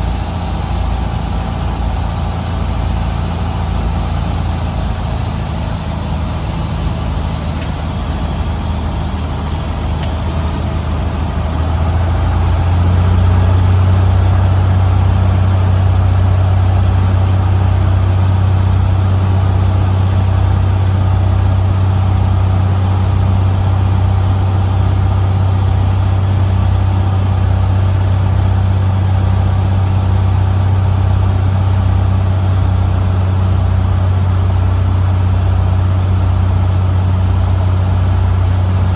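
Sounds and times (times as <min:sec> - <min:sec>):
plane engine and propeller droning: 0:00.0 - 0:38.9.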